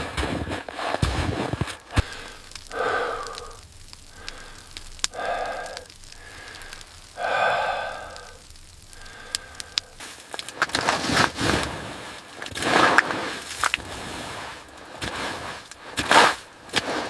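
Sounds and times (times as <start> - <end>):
sharp clicks: 1.6 - 10.8
person breathing out heavily: 1.9 - 10.2.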